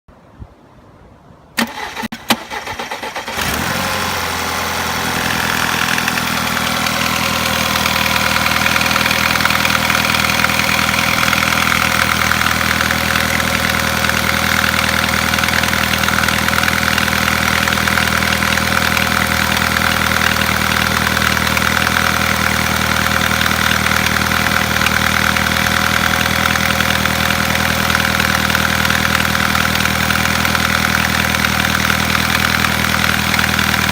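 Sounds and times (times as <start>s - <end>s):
starter cranking engine: 1.6s - 33.9s
car engine idling with knock: 3.5s - 33.9s.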